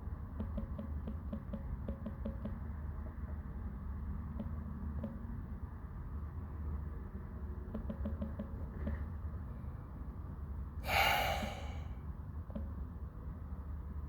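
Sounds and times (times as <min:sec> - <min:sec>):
person exhaling: 0:10.8 - 0:11.9.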